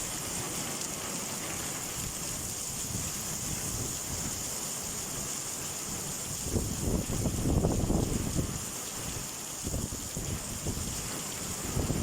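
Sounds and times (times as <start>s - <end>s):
heavy rain falling: 0.0s - 12.0s
wind buffeting the microphone: 2.0s - 4.5s, 5.9s - 12.0s.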